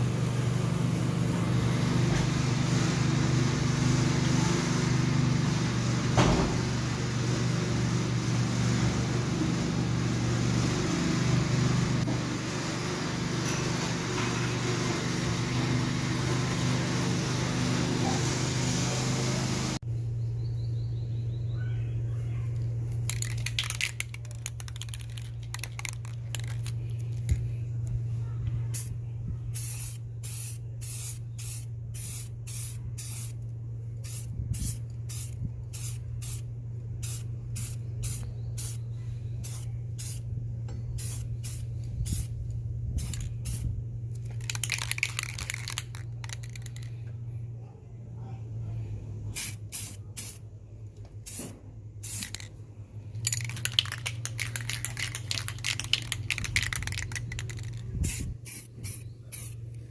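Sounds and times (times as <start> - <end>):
steady low hum: 19.7 - 59.9
aerosol spray can hissing: 34.0 - 36.4, 49.4 - 50.4, 51.3 - 52.5, 53.3 - 59.6.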